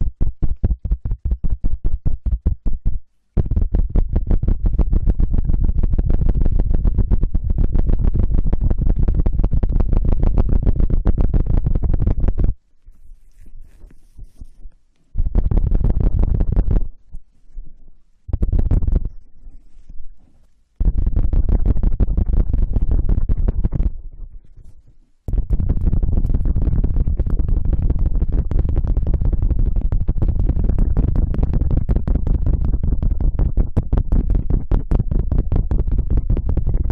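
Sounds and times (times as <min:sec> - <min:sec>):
scratching on microphone: 0:00.0 - 0:36.9
heavy low rumble: 0:03.4 - 0:12.5, 0:25.3 - 0:33.8
faint rustling: 0:12.6 - 0:15.2, 0:19.0 - 0:20.8.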